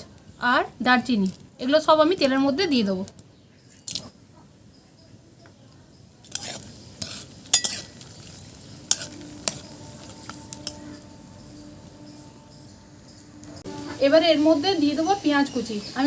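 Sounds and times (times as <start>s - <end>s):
spices sizzling in hot oil: 0.1s - 16.0s
metal spoon clinking on pan: 6.2s - 11.2s.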